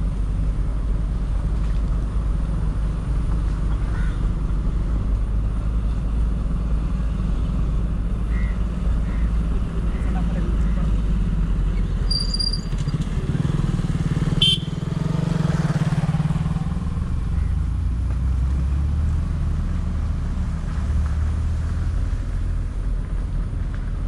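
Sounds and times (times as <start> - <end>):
motorcycle engine running: 12.0 - 17.5.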